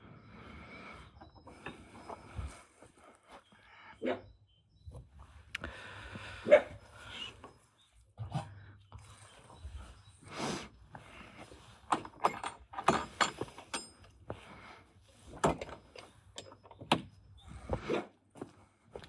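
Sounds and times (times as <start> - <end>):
tools knocking and scraping metal: 11.3 - 14.4, 15.3 - 17.2.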